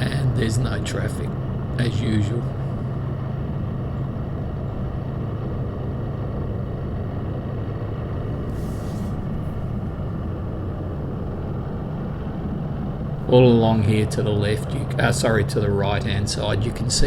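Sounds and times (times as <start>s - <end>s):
brief hiss: 8.5s - 9.4s.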